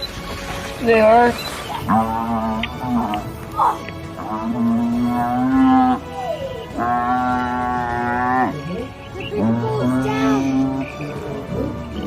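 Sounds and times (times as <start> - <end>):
cow mooing: 1.8 - 3.4, 4.1 - 11.5.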